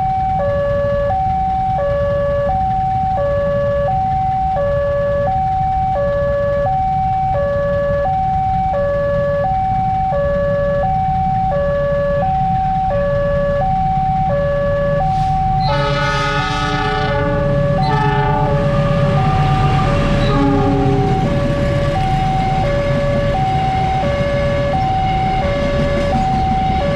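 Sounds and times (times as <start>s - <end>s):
train rumble: 0.0s - 26.9s
two-tone crossing alarm: 0.0s - 26.9s
train horn blasts: 15.1s - 22.1s.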